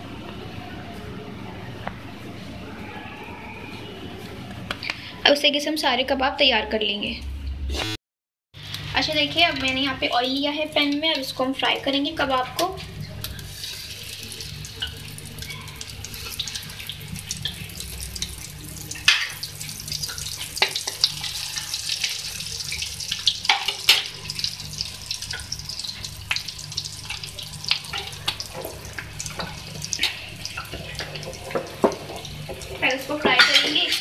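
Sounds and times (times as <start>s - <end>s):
food sizzling in hot oil: 12.8s - 34.0s.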